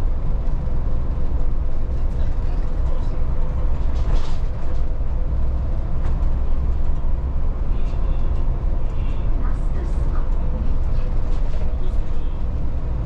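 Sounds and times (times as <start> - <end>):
bus diesel engine and road rumble: 0.0 - 13.0.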